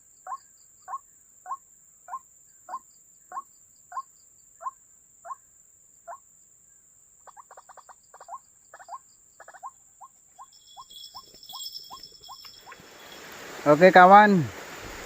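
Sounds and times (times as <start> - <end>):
waterhen calls: 7.3 - 15.0
hiss: 12.8 - 15.0.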